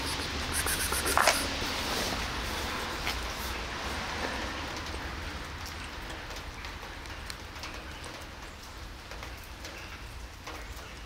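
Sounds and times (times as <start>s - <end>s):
rain on pavement: 0.0s - 11.0s
raindrops tapping: 2.9s - 11.0s.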